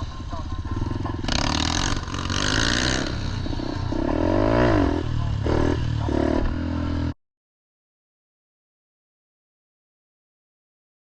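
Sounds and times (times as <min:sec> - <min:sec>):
pit bike engine revving: 0:00.0 - 0:07.2.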